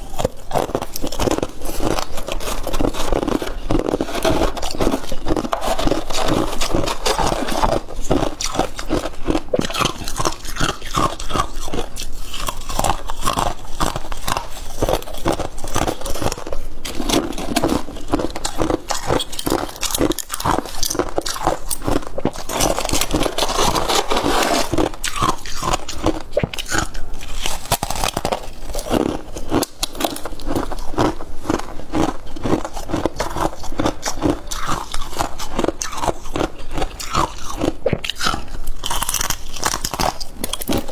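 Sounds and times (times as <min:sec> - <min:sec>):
crunching and chewing frost: 0:00.0 - 0:40.9
scraping frost: 0:22.5 - 0:24.9.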